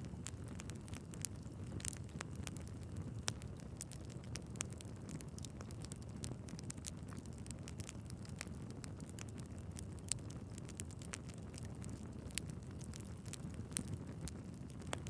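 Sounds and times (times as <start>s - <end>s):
low rumble of burning logs: 0.0s - 15.0s
wood fire crackling and popping: 0.0s - 15.0s.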